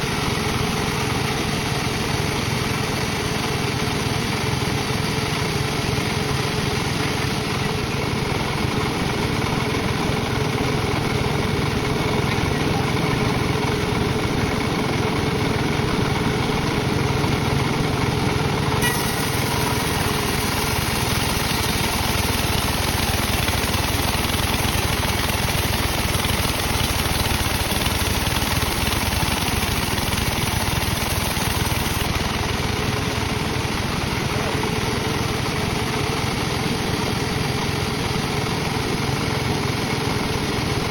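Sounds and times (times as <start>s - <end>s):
sawmill machinery running: 0.0s - 40.9s
bright hiss: 18.8s - 23.8s.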